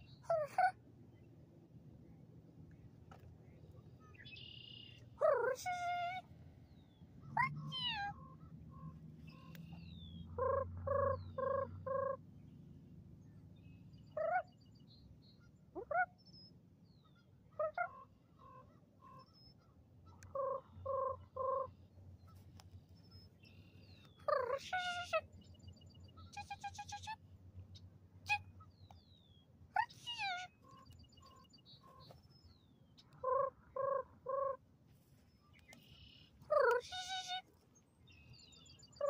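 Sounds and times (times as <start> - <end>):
evenly spaced bird calls: 0.0 - 39.0
birds mewing calls: 35.5 - 37.5.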